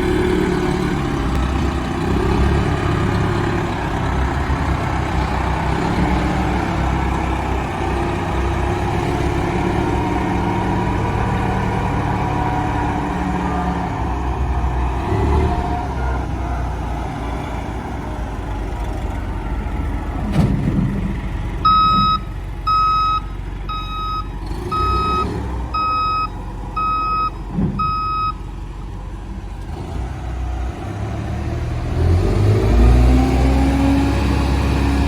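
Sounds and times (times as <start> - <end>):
diesel truck engine running: 0.0 - 35.0
backup alarm beeping: 21.6 - 28.4.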